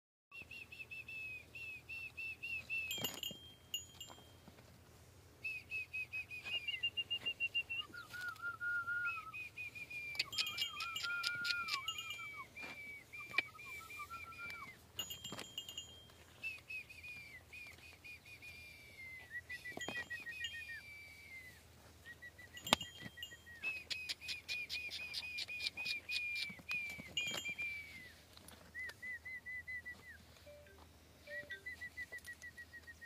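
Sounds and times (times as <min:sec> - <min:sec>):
bird whistling down-slurred notes: 0:05.4 - 0:14.8, 0:16.4 - 0:28.2, 0:31.2 - 0:33.0.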